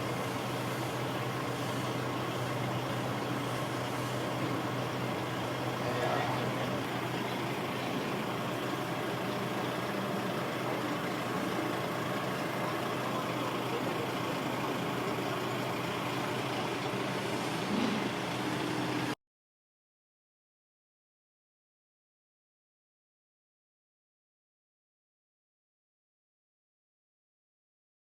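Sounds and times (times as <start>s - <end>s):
diesel bus engine idling: 0.0s - 19.2s.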